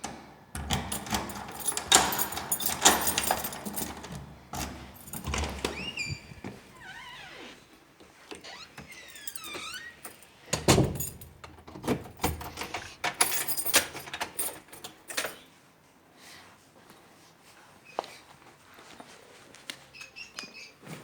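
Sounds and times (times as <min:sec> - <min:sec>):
door knocks and clatter: 0:00.6 - 0:06.8
keys jangling: 0:00.6 - 0:06.8, 0:08.8 - 0:15.4
short high squeaks: 0:05.8 - 0:07.6.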